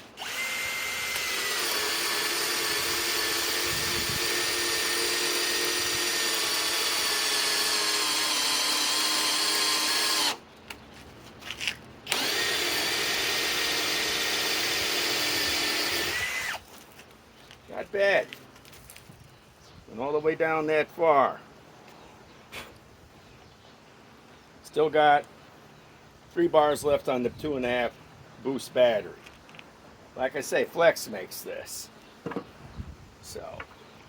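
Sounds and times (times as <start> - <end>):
cordless drill whining: 0.0 - 10.4, 12.1 - 16.6
light knocks: 32.2 - 32.5.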